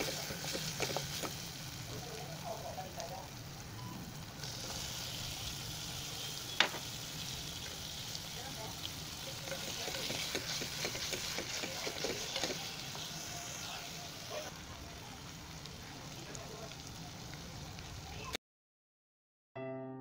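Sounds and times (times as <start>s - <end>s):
vegetables sizzling: 0.0s - 18.4s
spatula scraping a pot: 9.4s - 13.8s.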